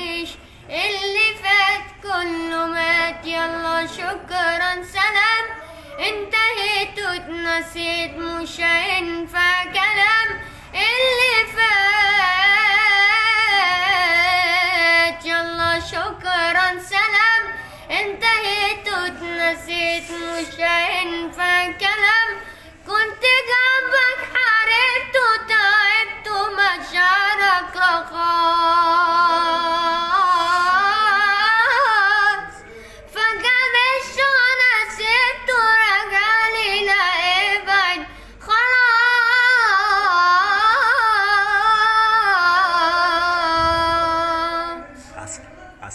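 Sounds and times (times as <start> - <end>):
child breathing: 22.4 - 22.8, 32.6 - 33.2, 38.1 - 38.4.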